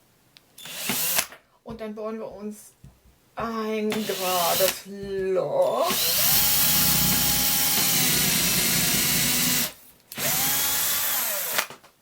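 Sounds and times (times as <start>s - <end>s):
electric drill boring into wood: 5.8s - 11.7s.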